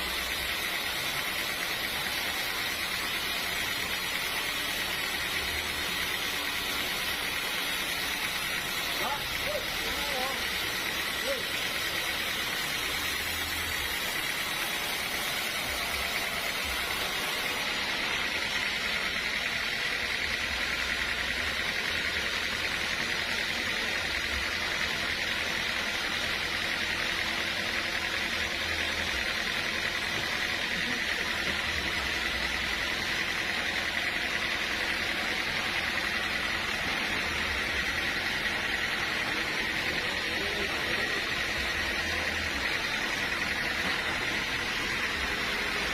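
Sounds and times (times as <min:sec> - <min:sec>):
sawmill machinery drone: 0:00.0 - 0:45.9.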